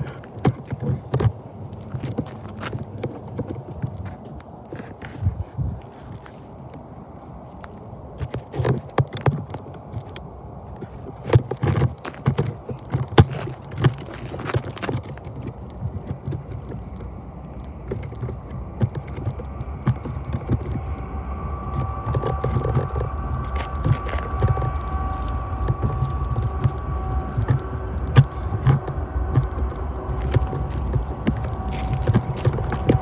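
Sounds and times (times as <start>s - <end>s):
rattles and clicks: 8.2s - 33.0s
freight train rumbling on rails: 10.2s - 33.0s.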